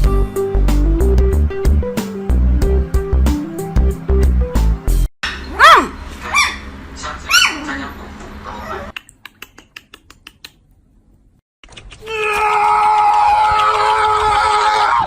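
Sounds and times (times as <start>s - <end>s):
puppy yelping: 5.3s - 6.7s, 7.3s - 7.7s, 8.4s - 9.0s.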